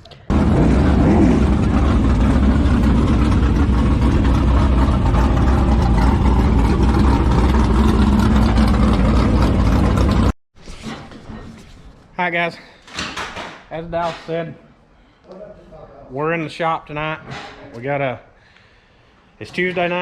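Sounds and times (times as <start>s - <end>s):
large engine running: 0.3s - 10.4s.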